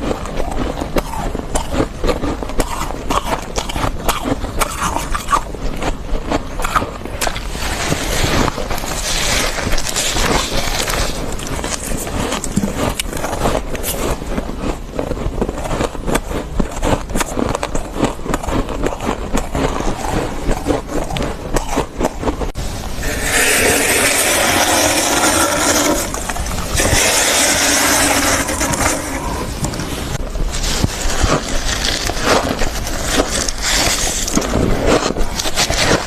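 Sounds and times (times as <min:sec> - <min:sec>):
frost crunching: 0:00.0 - 0:36.0
scraping strokes through frost: 0:07.2 - 0:14.2, 0:23.0 - 0:36.0.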